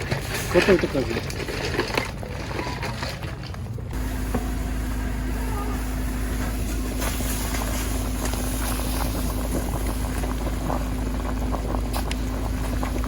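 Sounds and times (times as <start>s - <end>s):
low rumble: 2.2s - 13.0s
soup boiling with small pops: 6.9s - 13.0s.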